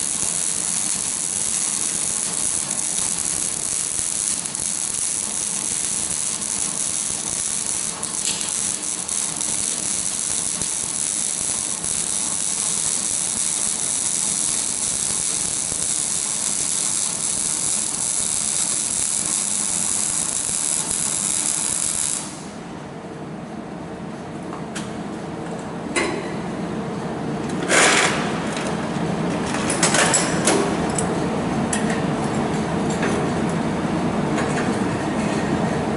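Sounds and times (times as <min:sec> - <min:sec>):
welding arc crackling hiss: 0:00.0 - 0:22.6.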